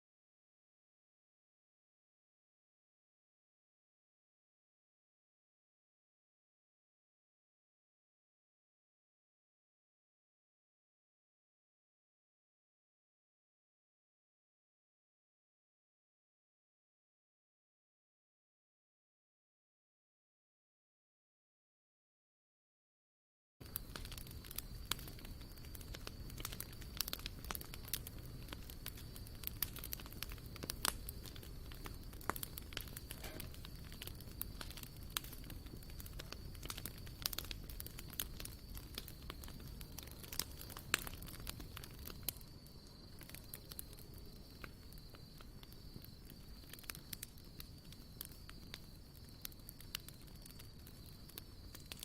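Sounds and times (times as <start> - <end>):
campfire crackling and popping: 23.6 - 52.0.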